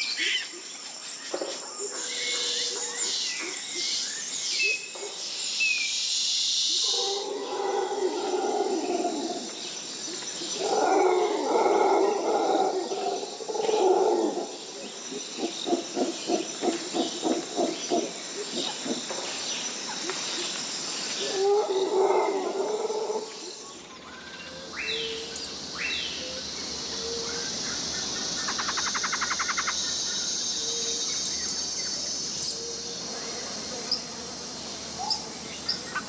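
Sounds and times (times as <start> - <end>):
dense insect hiss: 0.0 - 36.0
high-pitched insect whine: 0.0 - 36.0
howler monkeys roaring: 6.8 - 9.6, 10.4 - 19.1, 21.2 - 23.6.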